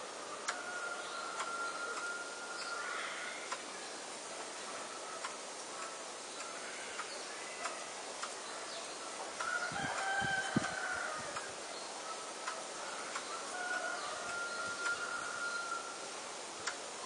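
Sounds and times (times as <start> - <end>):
distant bird call: 0.0 - 16.1
steady outdoor hiss: 0.0 - 17.0
faint ticks: 1.3 - 2.8, 3.4 - 3.7, 5.2 - 8.4, 12.4 - 15.0, 16.6 - 16.9.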